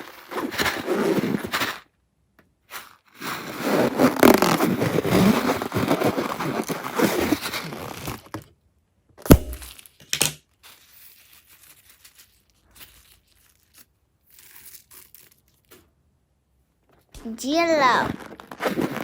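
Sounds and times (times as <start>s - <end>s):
sharp loud crack: 9.3s - 9.7s
crinkling: 18.0s - 19.0s.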